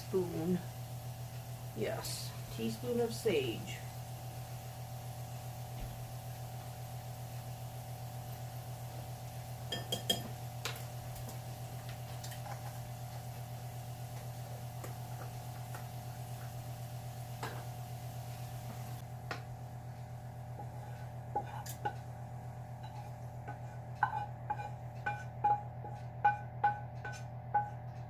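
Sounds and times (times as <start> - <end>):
steady electrical hum: 0.0 - 28.0
utensil clinking on dishes: 9.7 - 10.3.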